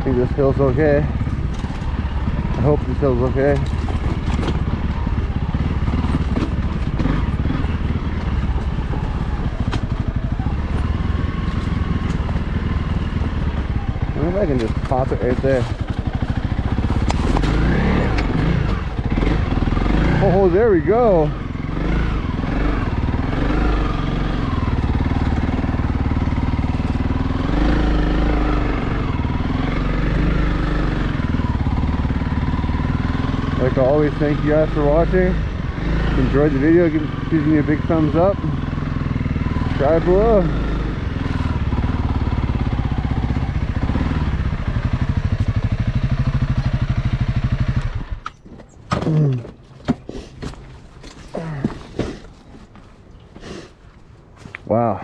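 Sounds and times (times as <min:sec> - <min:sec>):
dirt bike engine under load: 0:00.0 - 0:21.3, 0:39.2 - 0:54.8.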